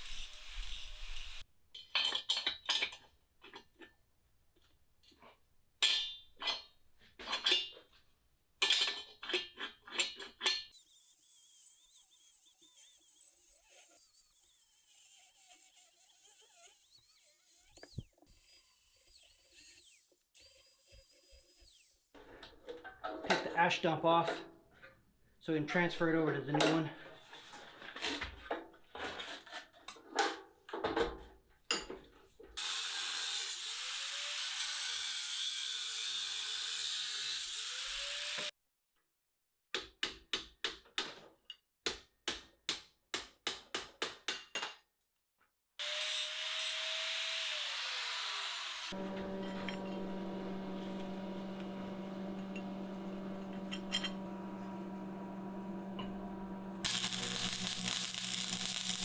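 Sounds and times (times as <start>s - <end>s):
power tool running: 10.7s - 22.1s, 45.8s - 59.0s
tool winding down whine: 10.7s - 22.1s, 32.6s - 38.5s, 45.8s - 59.0s
steady hum: 49.0s - 59.0s.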